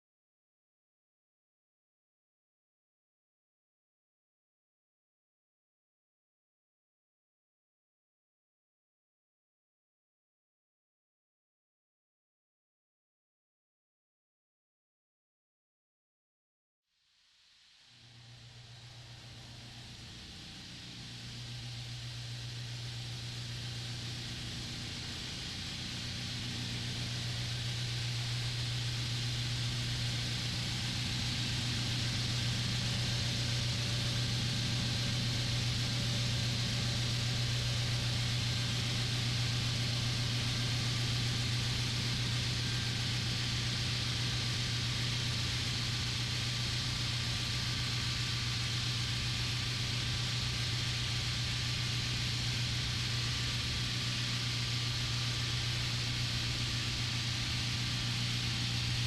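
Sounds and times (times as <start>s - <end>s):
broad hiss: 17.1s - 59.0s
machine low hum: 17.7s - 59.0s.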